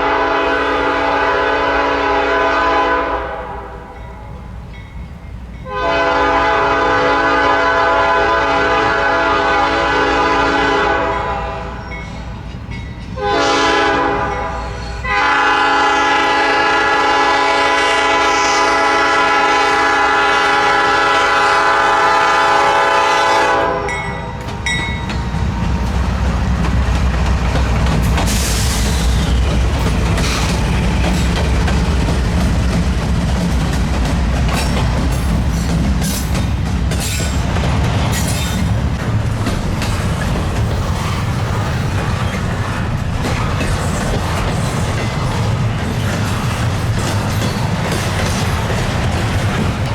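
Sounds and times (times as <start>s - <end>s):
locomotive air horn blasts: 0.0s - 4.0s, 5.7s - 11.8s, 13.2s - 24.4s
train passing with loud rumble: 0.0s - 49.9s
wheels clicking over rail joints: 24.3s - 49.9s.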